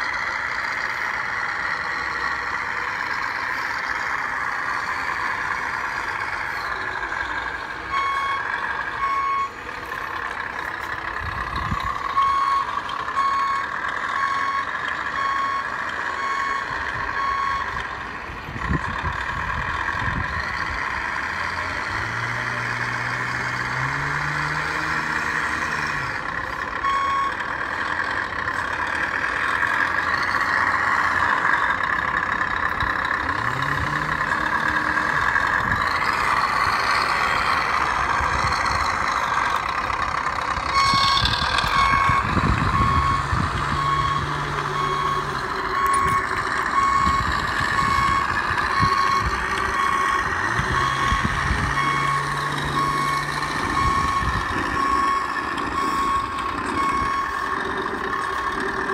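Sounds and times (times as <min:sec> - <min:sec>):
simulated diesel engine revving: 0:00.0 - 0:58.9
reversing beeps: 0:07.9 - 0:09.6, 0:11.6 - 0:17.9, 0:26.8 - 0:27.6, 0:40.6 - 0:58.9.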